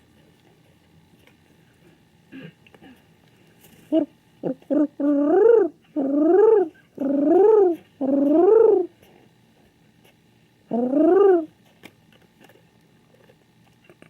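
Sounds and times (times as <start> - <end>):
pigeon cooing: 3.9 - 9.0, 10.7 - 11.6.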